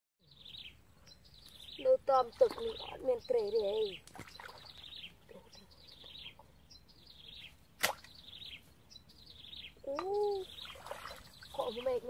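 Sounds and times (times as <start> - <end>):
sharp crack: 7.8 - 8.1.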